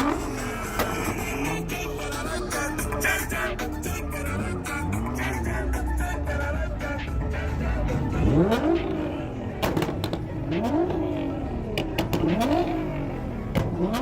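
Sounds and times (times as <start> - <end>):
car engine revving in blips: 0.0 - 14.0.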